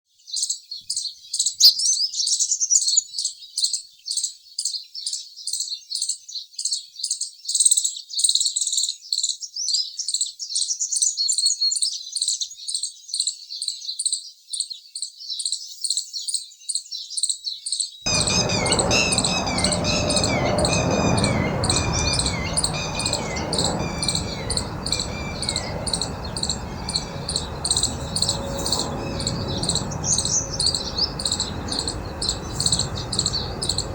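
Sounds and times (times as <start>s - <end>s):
high-pitched bird and insect chirping: 18.1s - 33.9s
lower falling chirps: 18.1s - 33.9s
outdoor background noise: 18.1s - 33.9s.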